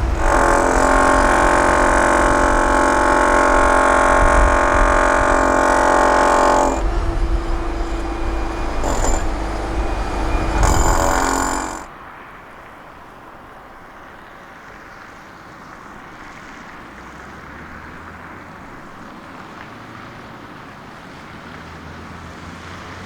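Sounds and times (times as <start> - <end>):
loud many-toned whine: 0.0 - 12.0
diesel construction machinery running: 0.0 - 12.2.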